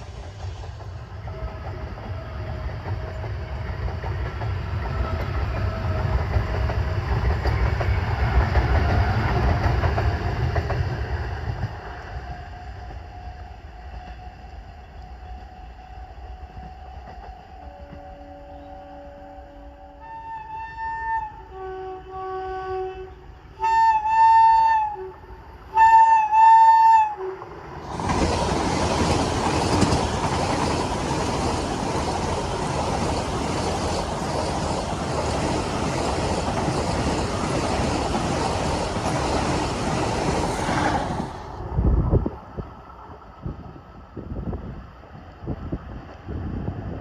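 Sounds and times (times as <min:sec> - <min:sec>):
train rushing past: 0:00.0 - 0:21.1, 0:23.5 - 0:47.0
train horn blasts: 0:01.2 - 0:03.2, 0:12.3 - 0:27.5.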